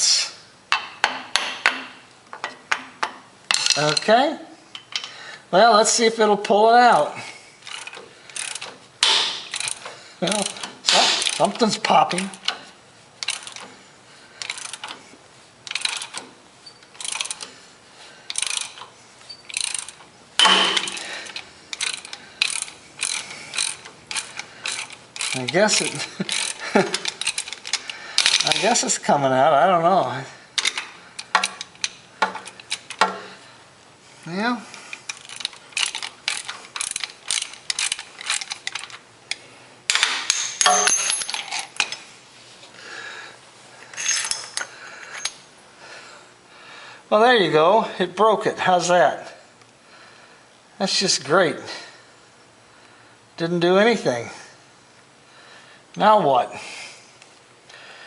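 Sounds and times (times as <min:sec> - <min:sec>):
ratchet wrench clicking: 0:07.6 - 0:12.6, 0:13.2 - 0:13.7, 0:14.4 - 0:15.0, 0:15.6 - 0:17.5, 0:18.3 - 0:28.6, 0:30.6 - 0:33.2, 0:35.1 - 0:39.4
metal grinding and creaking: 0:18.3 - 0:29.1, 0:40.3 - 0:42.0, 0:43.9 - 0:45.4.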